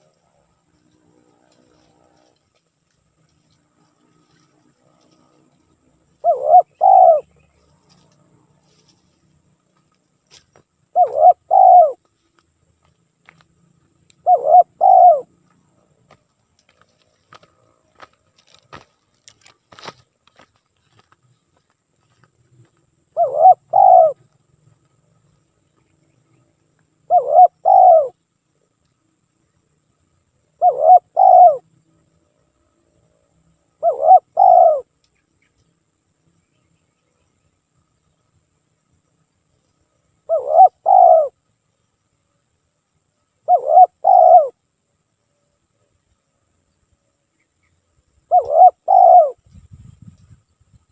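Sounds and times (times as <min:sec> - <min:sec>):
dove cooing: 0:04.4 - 0:08.0, 0:10.9 - 0:12.0, 0:14.2 - 0:15.8, 0:23.1 - 0:24.3, 0:27.0 - 0:28.2, 0:30.6 - 0:31.7, 0:33.8 - 0:34.9, 0:40.2 - 0:41.4, 0:43.4 - 0:44.6, 0:48.3 - 0:49.4.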